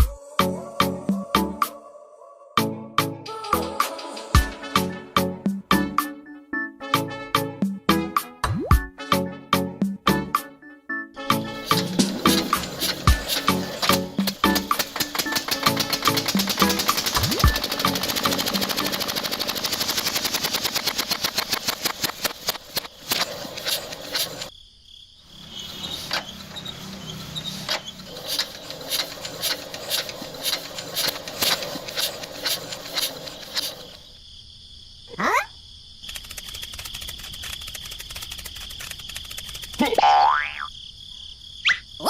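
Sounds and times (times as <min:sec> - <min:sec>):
background music: 0:00.0 - 0:19.7
small petrol engine running: 0:11.4 - 0:24.5, 0:25.4 - 0:34.2, 0:36.1 - 0:39.9
insects chirping: 0:11.4 - 0:42.0.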